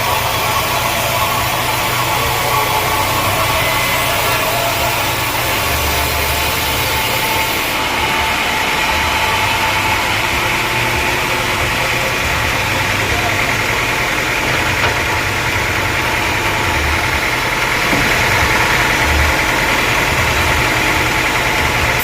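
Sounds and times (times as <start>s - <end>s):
sawmill machinery running: 0.0s - 22.0s.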